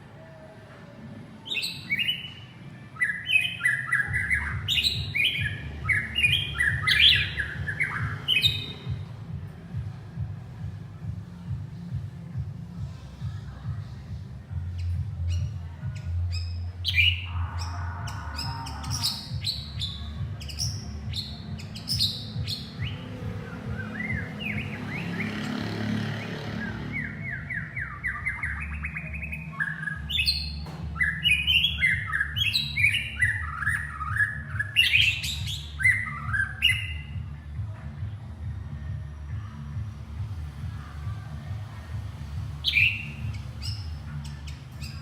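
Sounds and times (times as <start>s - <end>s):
bird singing whistled notes: 1.4s - 9.0s, 14.7s - 25.6s, 26.9s - 37.2s, 42.6s - 45.0s.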